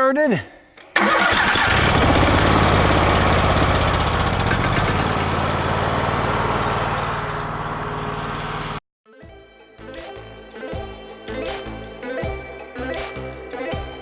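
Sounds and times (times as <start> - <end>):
engine running steadily: 1.0 - 8.8.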